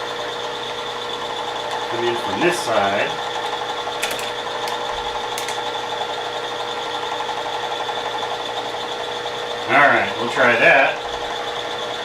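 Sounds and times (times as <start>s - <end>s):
milling machine whining: 0.0s - 12.0s.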